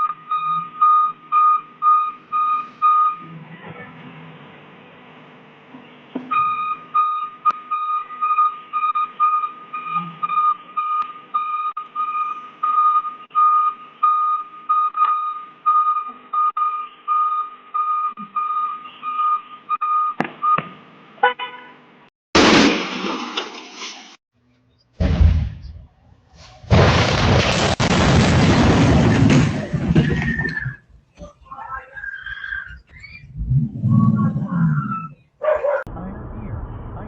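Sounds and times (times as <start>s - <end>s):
loud burst of noise: 22.4s - 24.2s, 26.5s - 30.5s.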